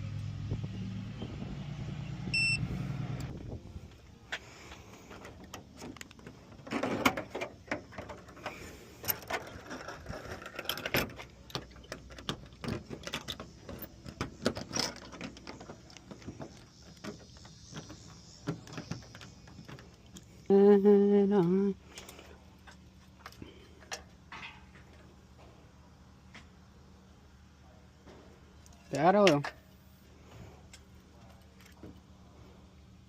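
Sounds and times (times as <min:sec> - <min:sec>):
hand tools and metal parts clinking: 0:05.0 - 0:20.7, 0:21.3 - 0:25.5, 0:28.6 - 0:29.7.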